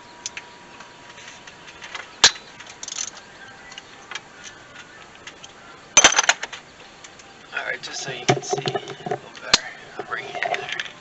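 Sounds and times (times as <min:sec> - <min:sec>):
metal tools clicking and clinking: 0:02.2 - 0:03.2.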